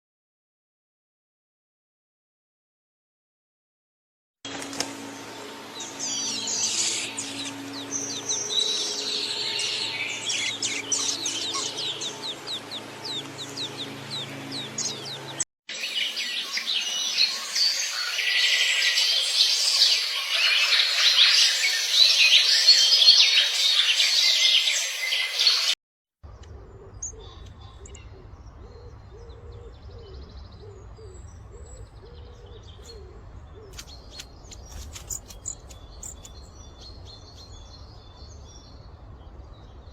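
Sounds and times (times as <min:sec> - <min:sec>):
low steady hum: 0:04.5 - 0:15.4
songbirds singing and chirping: 0:04.6 - 0:39.9.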